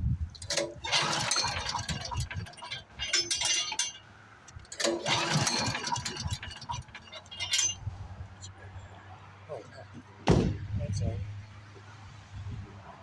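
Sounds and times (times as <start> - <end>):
metallic clinking and rattling: 0.3 - 8.2.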